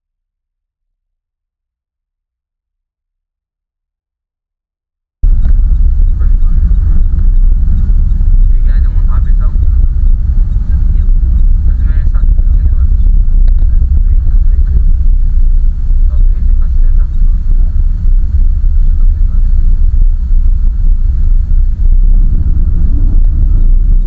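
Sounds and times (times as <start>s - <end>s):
diesel engine and tyres rumbling: 5.2s - 24.0s.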